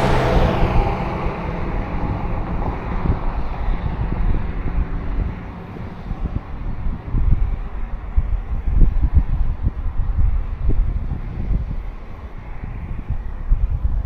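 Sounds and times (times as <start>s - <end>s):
vehicle passing by: 0.0s - 7.9s
wind buffeting microphone: 0.0s - 14.0s.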